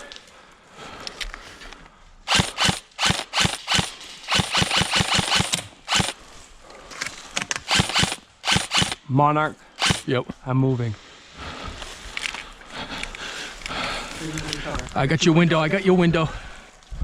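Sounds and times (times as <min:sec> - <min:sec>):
airsoft gun shots: 0:02.3 - 0:06.2, 0:07.7 - 0:09.0, 0:09.8 - 0:10.1.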